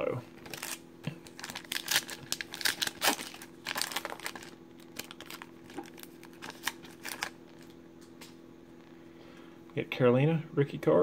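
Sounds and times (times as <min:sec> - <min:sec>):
foil wrapper crinkling: 0:00.4 - 0:07.8.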